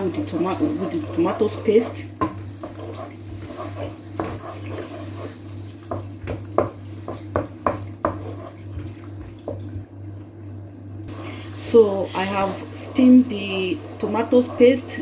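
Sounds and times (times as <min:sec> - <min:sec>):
onions frying in oil: 0:00.0 - 0:15.0
spoon knocking against pot: 0:05.9 - 0:08.3.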